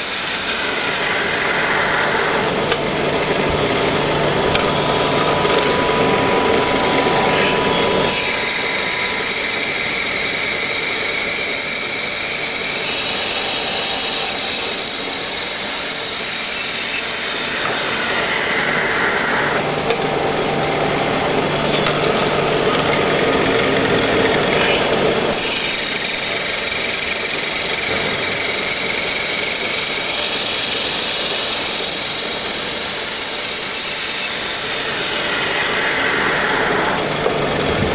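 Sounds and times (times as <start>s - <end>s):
lathe machining: 0.0s - 37.9s.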